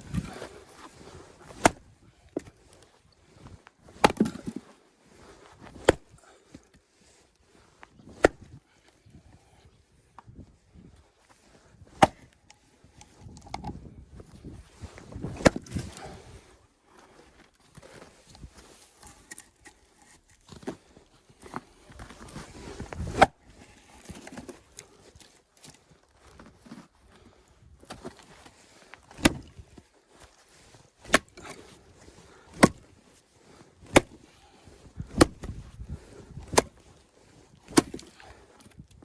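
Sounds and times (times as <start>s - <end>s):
axe chopping firewood: 1.4s - 2.5s, 3.9s - 4.6s, 5.7s - 6.2s, 8.1s - 8.6s, 11.9s - 12.4s, 15.2s - 16.2s, 23.0s - 23.4s, 29.1s - 29.7s, 31.0s - 33.0s, 33.8s - 36.9s, 37.6s - 38.4s.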